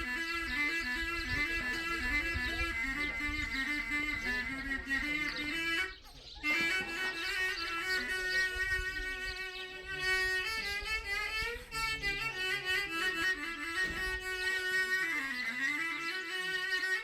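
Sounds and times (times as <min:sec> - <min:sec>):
bowed string melody: 0:00.0 - 0:17.0
low drone note: 0:06.8 - 0:16.8.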